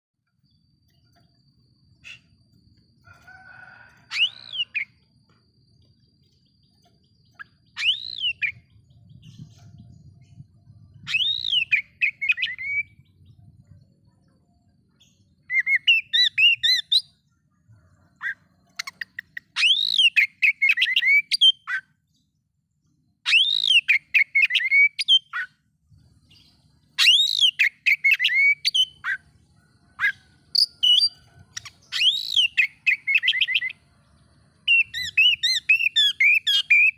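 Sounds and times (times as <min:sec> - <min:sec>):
songbird whistling song: 0:00.4 - 0:36.9.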